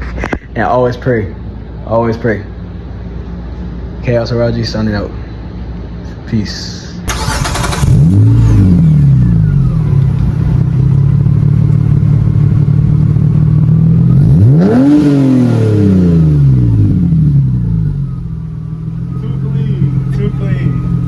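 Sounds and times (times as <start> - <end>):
car engine idling: 7.0 - 21.0
car engine revving: 7.1 - 21.0.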